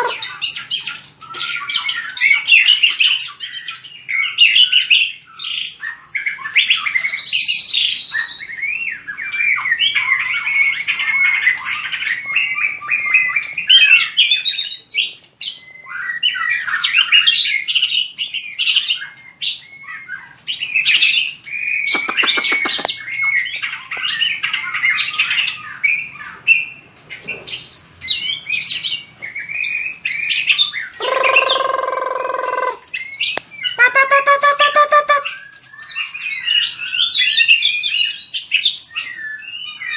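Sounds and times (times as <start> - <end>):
harsh buzzy bird call: 0.0 - 0.3, 21.9 - 23.0, 31.0 - 35.4
bird singing whistled phrases: 15.5 - 24.2, 29.4 - 39.9.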